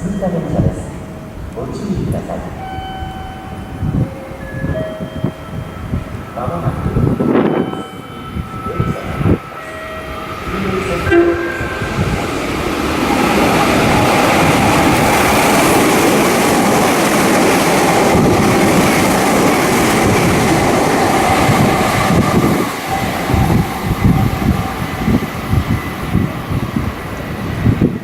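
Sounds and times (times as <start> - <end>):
faint whine tones: 0.0 - 13.2
train wheels rushing on rail: 0.0 - 28.0
wind gusts on microphone: 0.0 - 28.0.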